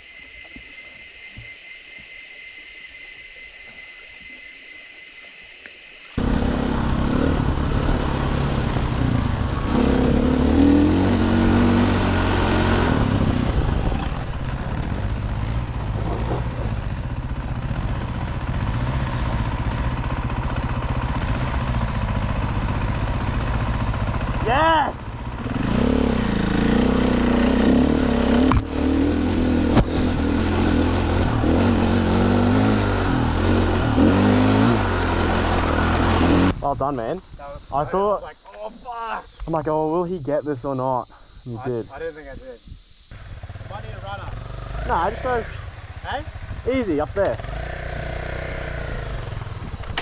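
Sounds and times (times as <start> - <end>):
dirt bike engine revving: 6.2 - 36.6, 43.1 - 50.0.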